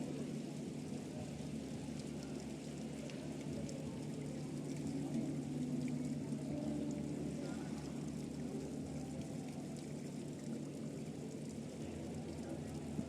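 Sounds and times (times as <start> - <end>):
churned water rushing: 0.0 - 13.0.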